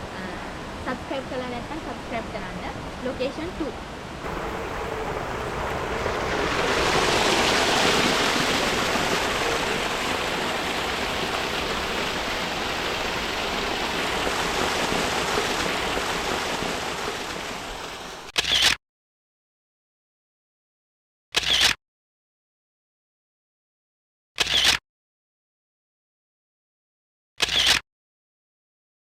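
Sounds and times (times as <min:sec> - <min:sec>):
rushing stream water: 0:03.8 - 0:18.3.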